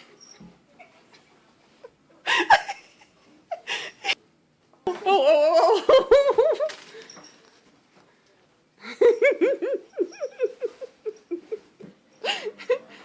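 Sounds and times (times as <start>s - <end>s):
person laughing: 8.8s - 11.7s.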